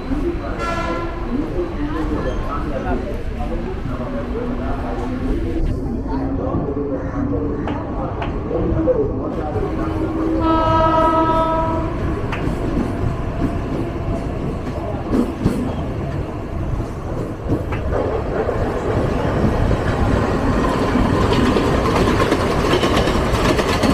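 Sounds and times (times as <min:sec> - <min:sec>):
train wheels rumbling on rail: 0:09.3 - 0:23.9.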